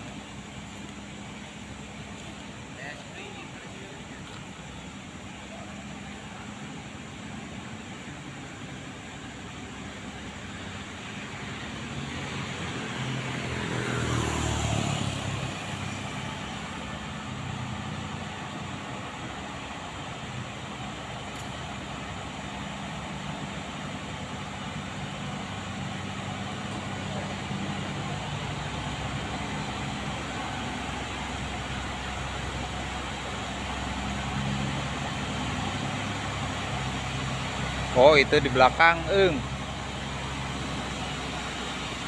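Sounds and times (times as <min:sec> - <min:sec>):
low engine running: 0:00.0 - 0:42.0
vehicle passing close by: 0:10.4 - 0:19.3, 0:21.8 - 0:42.0.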